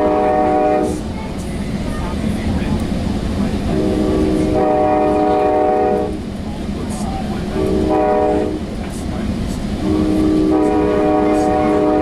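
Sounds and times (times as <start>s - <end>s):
train horn chord: 0.0s - 1.0s, 3.7s - 6.2s, 7.6s - 8.6s, 9.8s - 12.0s
moving train rumble: 0.0s - 12.0s.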